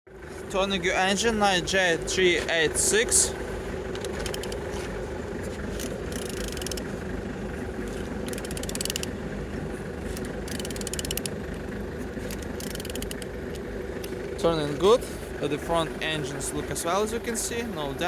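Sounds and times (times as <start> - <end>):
ratchet wrench clicking: 4.0 - 4.7, 5.8 - 6.9, 8.2 - 9.1, 10.1 - 11.4, 12.2 - 14.2.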